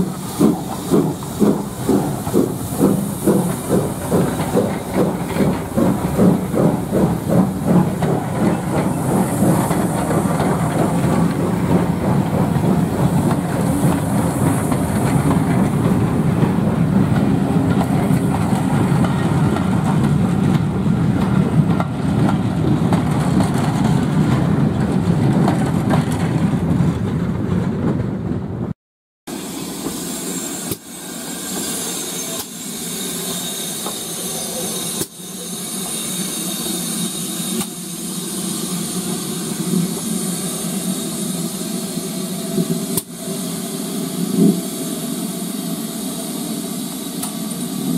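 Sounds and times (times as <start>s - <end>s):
steam locomotive exhaust beats: 0.0s - 28.0s, 29.3s - 47.9s
train wheels clattering on rails: 0.0s - 28.6s, 29.8s - 38.0s.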